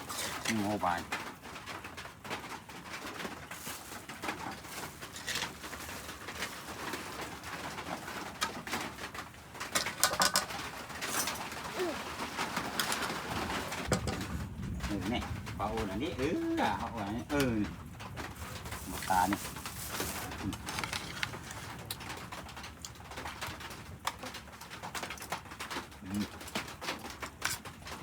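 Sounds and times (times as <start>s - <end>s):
sharp knocks and clatter: 0.0s - 11.6s, 12.2s - 15.9s
doves cooing: 10.5s - 22.2s.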